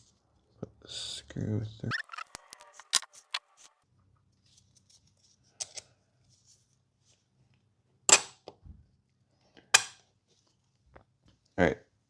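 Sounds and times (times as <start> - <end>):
small metal parts clicking: 1.9 - 3.7.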